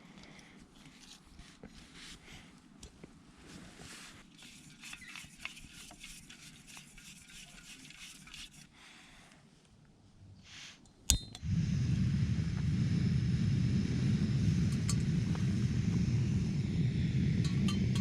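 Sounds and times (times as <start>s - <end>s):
gas stove burner rushing: 11.4s - 18.0s.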